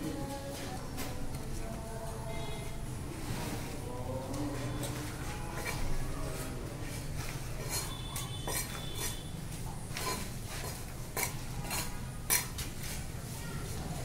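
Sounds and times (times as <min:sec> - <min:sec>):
hand tools clinking and scraping: 0:04.4 - 0:09.3, 0:09.9 - 0:13.1.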